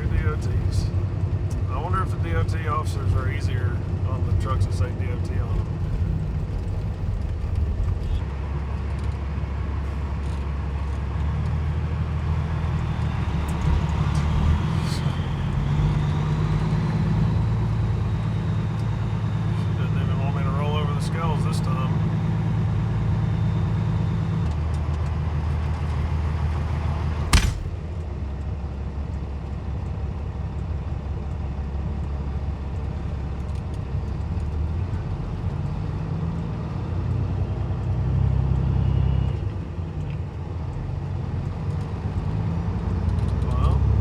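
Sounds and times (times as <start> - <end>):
diesel engine revving: 0.0 - 8.6, 9.6 - 28.0, 40.9 - 44.0
sharp click: 27.3 - 27.8.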